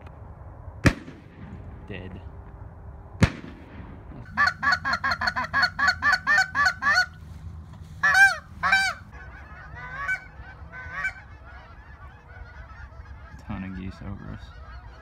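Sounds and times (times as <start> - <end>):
geese honking: 4.3 - 15.0.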